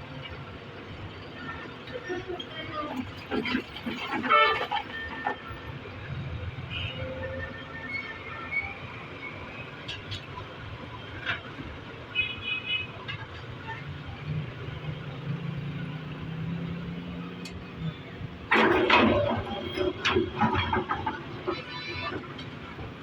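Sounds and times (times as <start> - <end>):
heavy engine humming: 12.8 - 23.0
loud clattering: 18.4 - 22.4
scattered knocks: 18.5 - 23.0.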